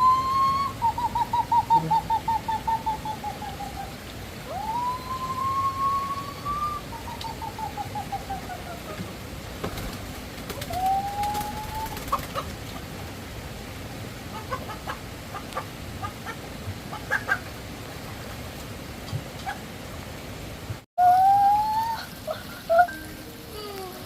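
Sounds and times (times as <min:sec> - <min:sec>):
background hiss: 0:00.0 - 0:24.0
chickens clucking: 0:11.6 - 0:13.0, 0:14.3 - 0:17.6.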